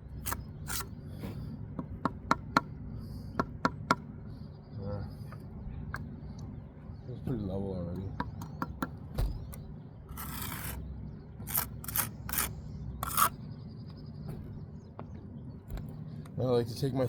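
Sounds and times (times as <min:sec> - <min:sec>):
trowel scraping mortar: 0:00.2 - 0:00.9, 0:10.1 - 0:10.8, 0:11.4 - 0:13.4
trowel tapping brick: 0:11.4 - 0:13.3.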